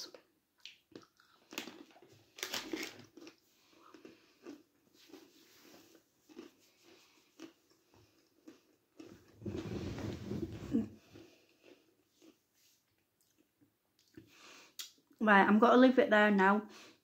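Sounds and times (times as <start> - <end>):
crunching pretzel bites: 0.0 - 9.3
soft chewing: 0.0 - 9.7, 10.7 - 15.2.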